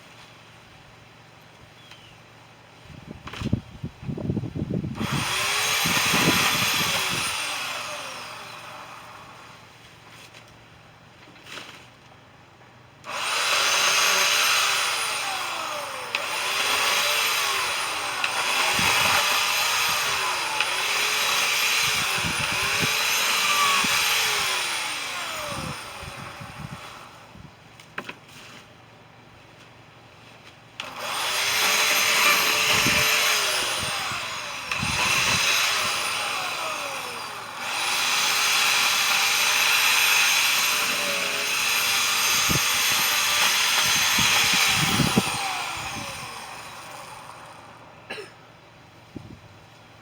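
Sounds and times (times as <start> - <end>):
chainsaw revving: 5.0 - 9.5, 13.0 - 27.1, 30.8 - 48.2.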